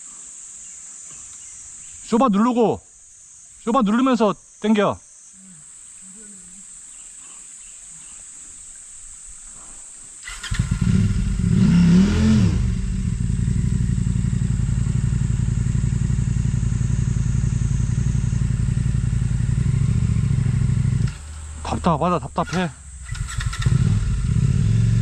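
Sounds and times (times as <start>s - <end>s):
motorcycle engine revving and idling: 10.2s - 25.0s.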